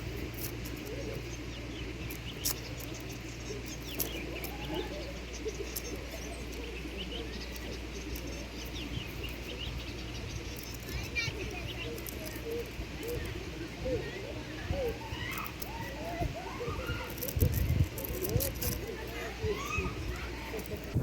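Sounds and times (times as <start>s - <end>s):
birds chirping: 0.0s - 21.0s
sharp clicks: 2.0s - 4.6s.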